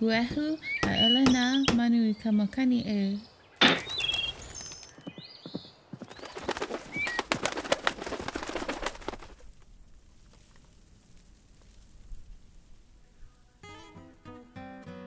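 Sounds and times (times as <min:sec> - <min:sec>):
bird chirps: 0:00.2 - 0:07.4
wing flaps of birds: 0:03.6 - 0:10.7.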